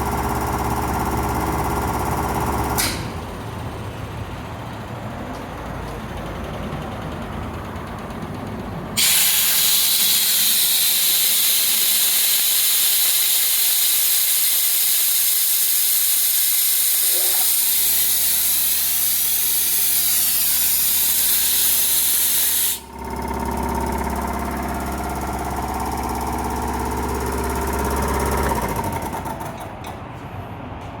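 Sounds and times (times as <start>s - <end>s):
air compressor motor humming: 0.0s - 3.4s, 9.0s - 29.7s
compressed air hissing: 9.0s - 22.9s.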